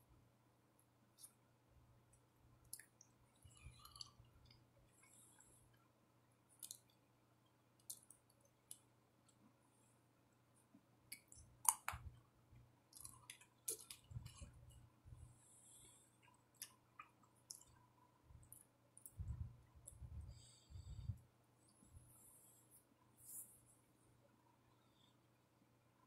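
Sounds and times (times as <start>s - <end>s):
mouth chewing clicks and smacks: 6.6s - 7.0s, 11.1s - 12.1s, 12.9s - 14.5s, 16.2s - 17.8s.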